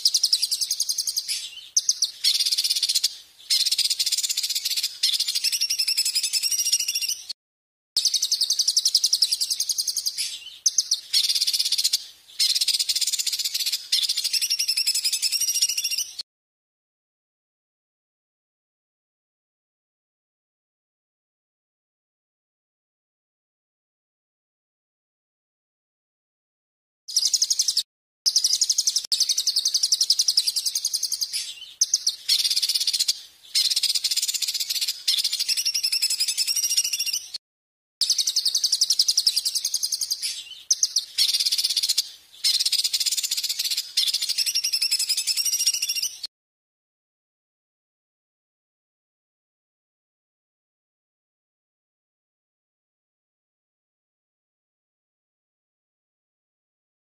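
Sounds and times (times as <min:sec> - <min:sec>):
songbird trilling: 0:00.0 - 0:07.3, 0:08.0 - 0:16.2, 0:27.1 - 0:37.4, 0:38.0 - 0:46.3.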